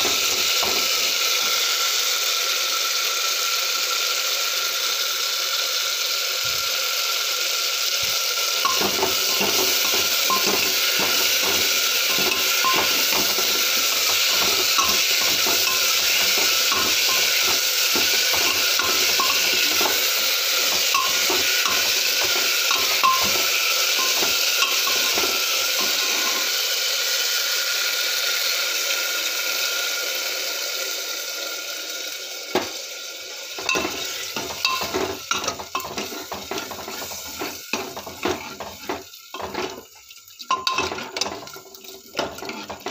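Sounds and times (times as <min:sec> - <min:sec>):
food sizzling in a pan: 0:00.0 - 0:42.9
spoon stirring and clinking on pan: 0:08.6 - 0:26.5, 0:33.6 - 0:42.9.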